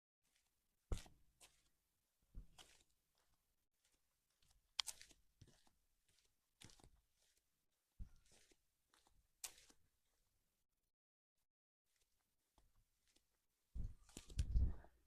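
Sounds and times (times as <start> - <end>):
soft foot scuffs: 0.2 - 1.7, 2.4 - 9.8
footsteps crunching on a path: 0.3 - 1.7, 2.4 - 9.8.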